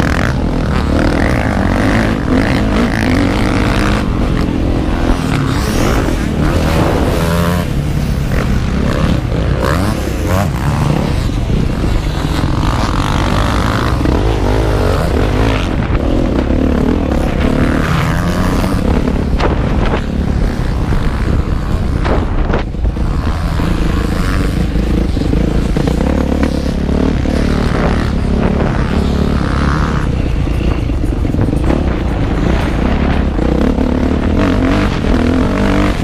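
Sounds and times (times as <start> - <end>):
motocross engine revving: 0.0 - 36.0.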